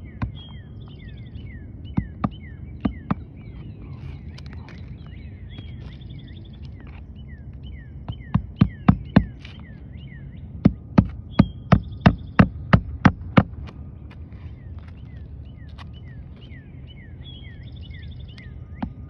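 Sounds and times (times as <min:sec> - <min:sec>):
hammer striking roofing nails: 0:10.6 - 0:13.6.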